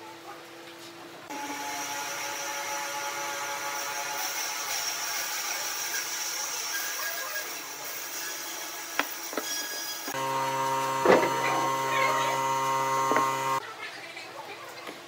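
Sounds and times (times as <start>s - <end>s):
power tool whirring on wood: 10.0s - 13.6s.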